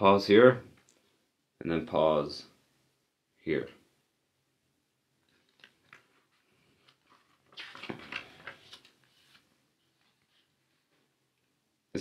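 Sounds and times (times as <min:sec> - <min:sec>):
paper pages rustling: 0:05.2 - 0:11.1.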